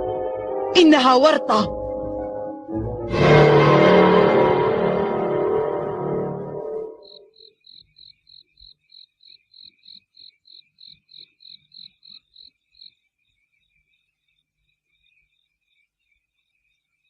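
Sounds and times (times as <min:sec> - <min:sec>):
crickets chirping: 0:07.0 - 0:17.0.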